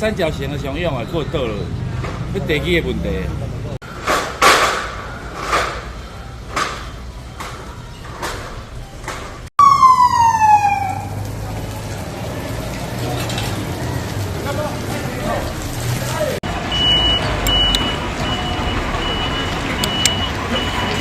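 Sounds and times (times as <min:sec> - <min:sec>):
siren falling in pitch: 0:09.6 - 0:11.3.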